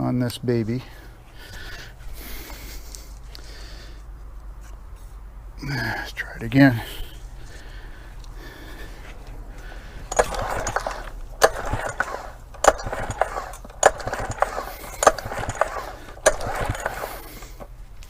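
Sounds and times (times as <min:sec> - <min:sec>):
engine whirring without firing: 0:06.8 - 0:18.0
pull-start cord snapping: 0:10.1 - 0:17.7.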